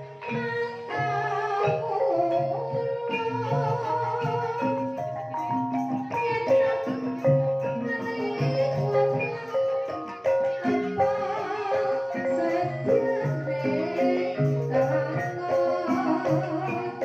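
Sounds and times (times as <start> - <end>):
struck metal mallet instruments: 0.0 - 17.0.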